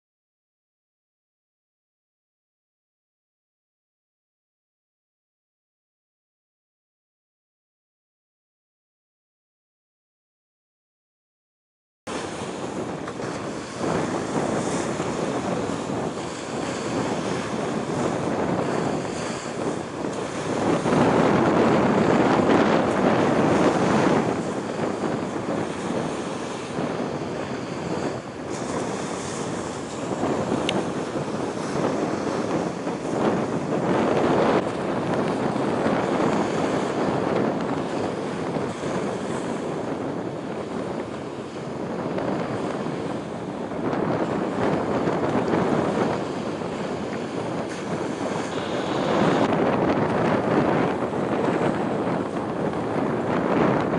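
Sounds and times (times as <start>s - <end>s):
wind buffeting microphone: 12.1s - 53.9s.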